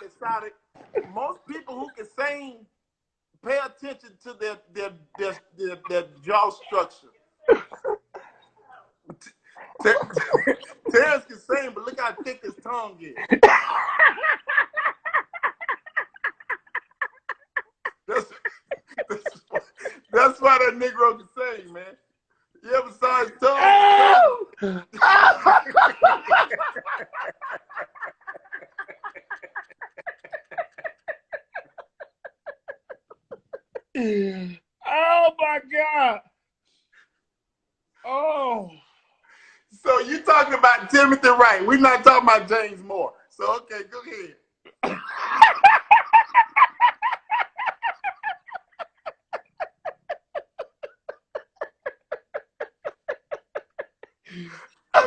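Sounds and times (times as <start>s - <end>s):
person laughing hard: 9.8s - 20.2s, 23.5s - 34.2s, 44.8s - 55.0s.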